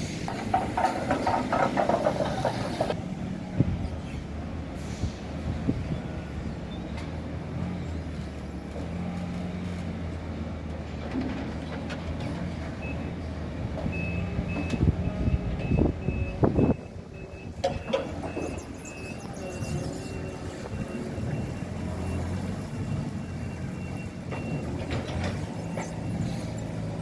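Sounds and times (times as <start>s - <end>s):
reversing alarm beeping: 13.9s - 26.6s.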